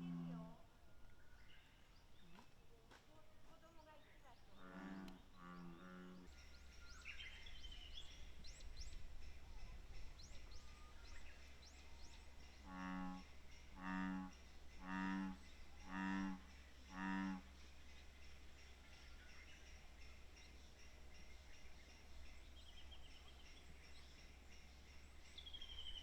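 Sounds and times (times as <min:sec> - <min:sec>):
bullfrog croaking: 0:12.6 - 0:17.5.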